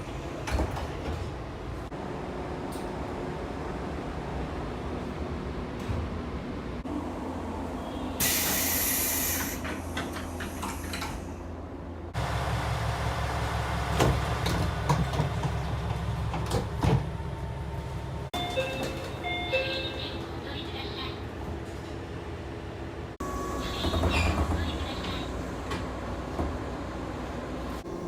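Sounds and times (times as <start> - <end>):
air hiss of train doors: 8.2 - 11.4
door-closing chime beeps: 18.4 - 20.0.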